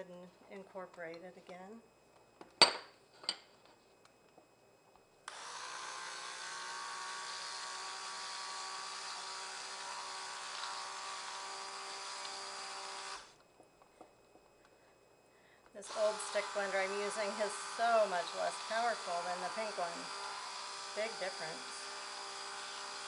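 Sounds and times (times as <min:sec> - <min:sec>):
stick blender running: 0:05.3 - 0:13.4, 0:15.8 - 0:23.0.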